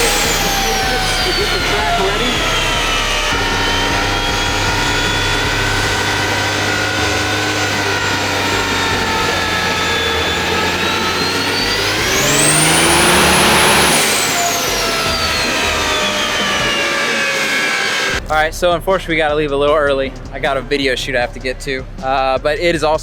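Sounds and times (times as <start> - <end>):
turbo whistle: 0.0 - 18.2
diesel engine running hard: 0.0 - 18.5.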